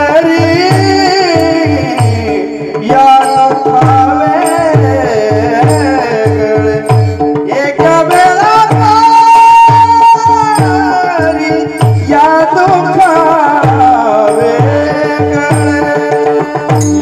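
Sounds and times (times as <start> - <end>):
man singing devotional song: 0.0 - 17.0
hand drum strokes: 0.2 - 17.0.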